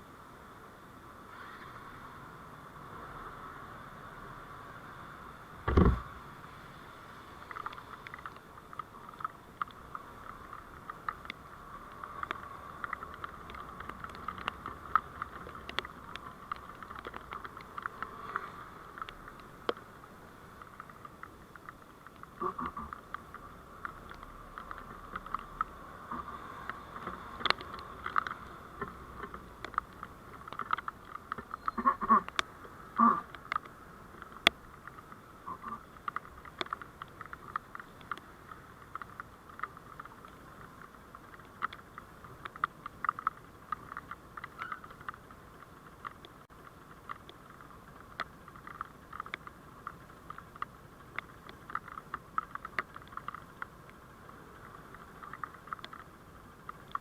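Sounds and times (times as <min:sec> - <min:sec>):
vehicle road noise: 0:00.0 - 0:57.0
sharp low knock: 0:05.7 - 0:06.1
small clicks and rattles: 0:07.4 - 0:57.0.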